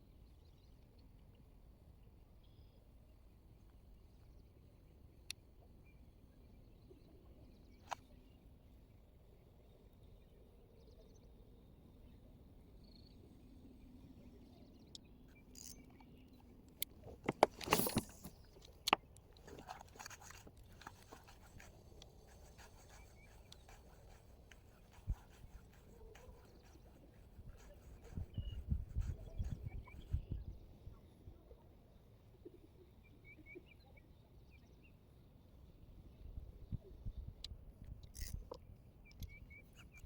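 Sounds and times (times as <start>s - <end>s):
knocks and rustling: 17.0s - 21.3s.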